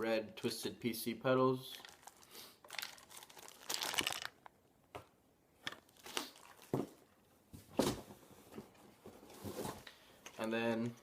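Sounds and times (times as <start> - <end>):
packaging crinkling: 1.7 - 4.6, 5.7 - 7.0.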